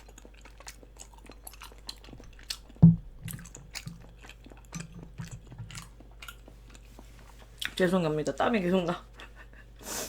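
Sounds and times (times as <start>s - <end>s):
chewing rice cake: 0.0s - 8.5s
loud thump: 2.8s - 3.2s.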